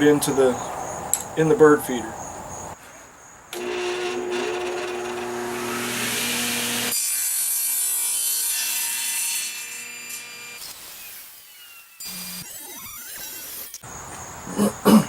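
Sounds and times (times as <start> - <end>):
power saw cutting wood: 3.5 - 13.8
saw blade whining: 3.6 - 13.8.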